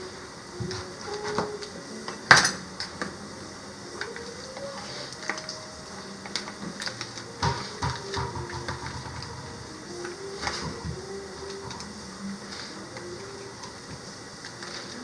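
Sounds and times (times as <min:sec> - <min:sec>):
cookware and utensils clinking: 0:06.3 - 0:09.5.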